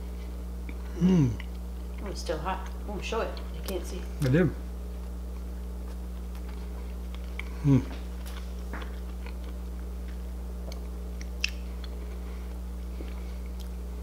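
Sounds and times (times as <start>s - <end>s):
steady low hum: 0.0s - 14.0s
person chewing: 0.6s - 2.0s, 5.0s - 14.0s
person humming: 0.9s - 1.5s, 7.5s - 8.0s.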